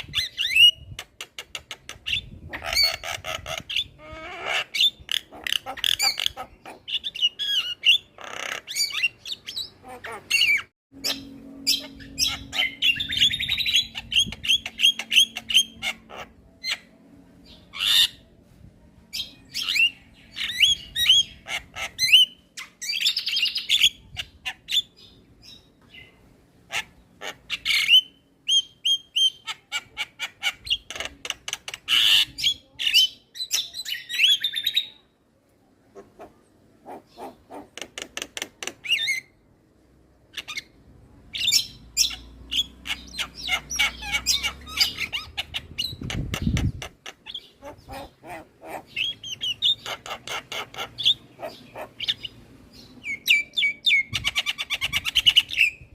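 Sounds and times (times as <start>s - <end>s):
mynas squawking and chattering: 0.0s - 16.9s, 35.9s - 39.2s, 41.4s - 52.3s.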